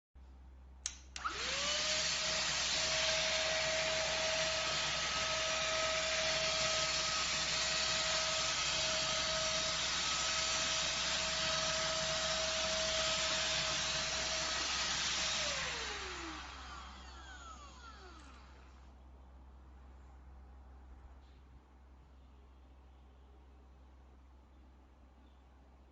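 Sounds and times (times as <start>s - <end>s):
vacuum cleaner motor whine: 1.2s - 18.9s.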